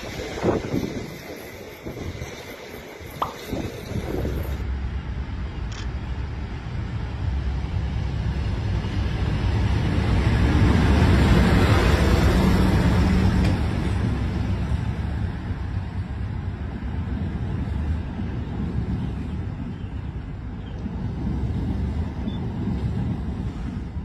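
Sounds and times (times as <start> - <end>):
train rumbling past: 0.0 - 24.0.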